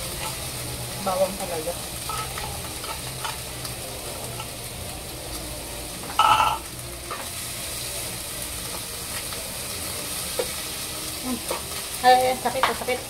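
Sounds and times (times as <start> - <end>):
food sizzling in a frying pan: 0.0 - 13.0
high ringing sound: 6.2 - 6.6.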